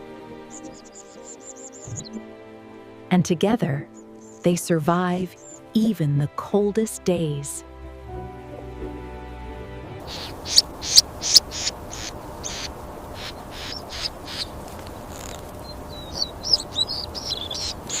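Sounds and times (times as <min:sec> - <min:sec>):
small birds chirping: 0:00.4 - 0:02.2, 0:03.8 - 0:04.5, 0:05.2 - 0:05.7, 0:10.0 - 0:18.0
faint steady hiss: 0:10.0 - 0:16.6.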